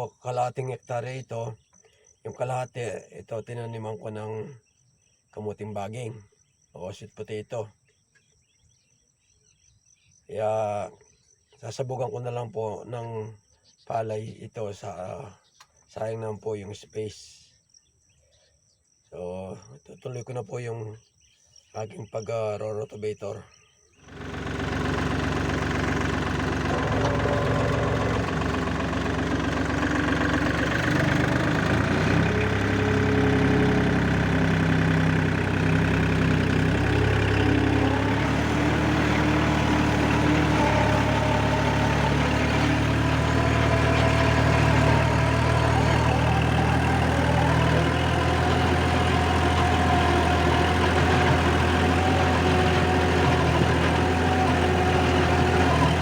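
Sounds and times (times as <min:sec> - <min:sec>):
tractor engine running: 0:24.1 - 0:56.0.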